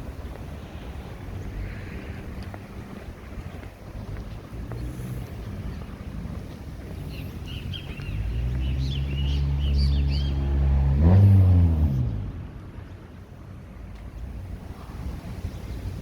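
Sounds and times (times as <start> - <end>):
small birds chirping: 2.9 - 10.6
vehicle engine passing by: 4.0 - 6.3, 7.0 - 12.9.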